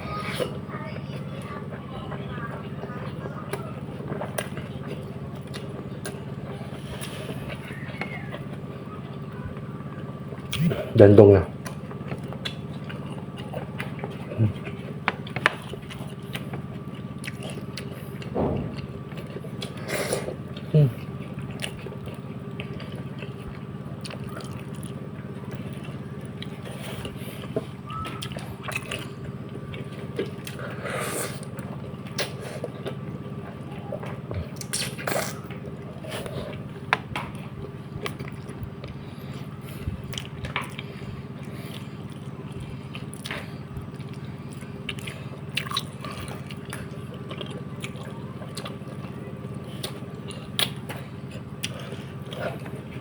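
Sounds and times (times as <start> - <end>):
steady low hum: 0.0 - 53.0
wet eating sounds: 0.0 - 53.0.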